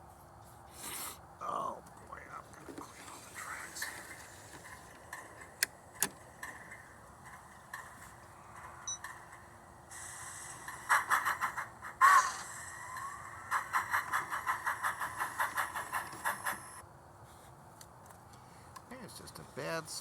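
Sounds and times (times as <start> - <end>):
model train motor humming: 3.2 - 16.8.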